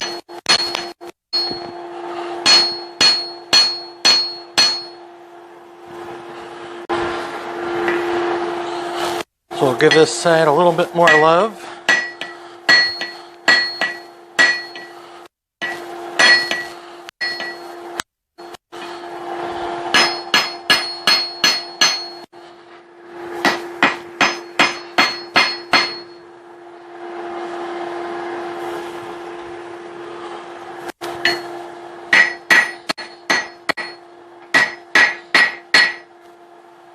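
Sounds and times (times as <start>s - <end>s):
hammer striking steel on anvil: 0.0s - 1.8s, 2.4s - 5.0s, 9.8s - 15.0s, 15.6s - 17.8s, 18.4s - 19.2s, 19.9s - 22.3s, 23.4s - 26.2s, 31.2s - 36.2s
steady hum: 0.0s - 36.9s.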